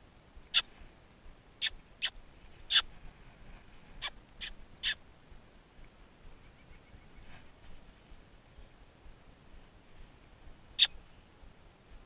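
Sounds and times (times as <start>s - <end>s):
small birds calling: 1.6s - 2.9s, 4.0s - 5.0s, 10.8s - 11.3s.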